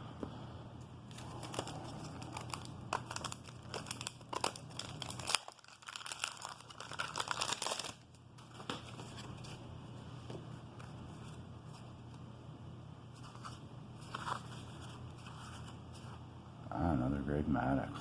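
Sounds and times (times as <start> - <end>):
wax paper pack tearing and crinkling: 1.1 - 8.1.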